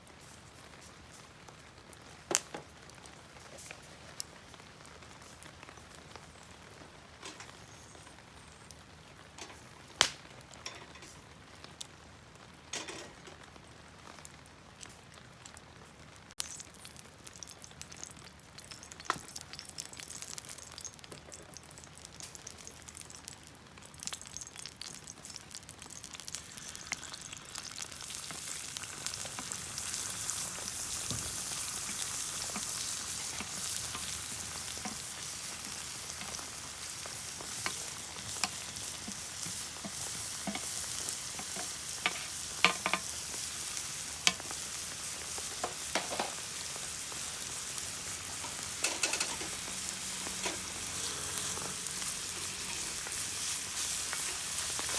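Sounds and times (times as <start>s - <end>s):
food sizzling in frying pan: 0.0s - 11.9s, 16.3s - 54.9s
utensil clicking against pan: 48.8s - 49.5s.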